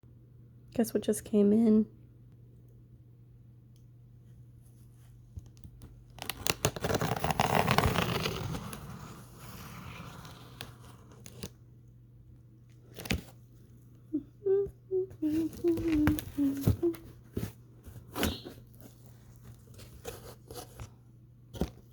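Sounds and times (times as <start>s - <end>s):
packaging tearing and crinkling: 6.1s - 11.5s.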